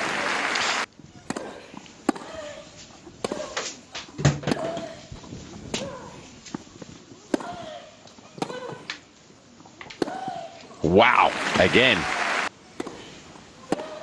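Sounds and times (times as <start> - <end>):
crowd applause: 0.0 - 0.9, 10.8 - 12.5
players grunting: 10.8 - 12.4.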